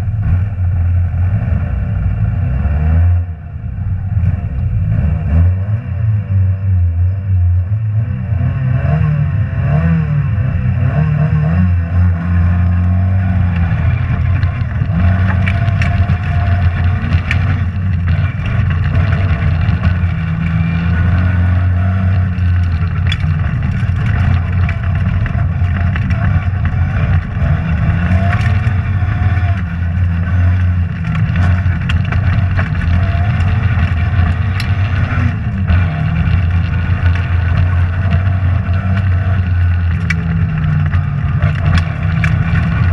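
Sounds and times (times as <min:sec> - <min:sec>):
rally car engine from inside: 0:00.0 - 0:42.9
sharp knocks and clicks: 0:13.4 - 0:42.9.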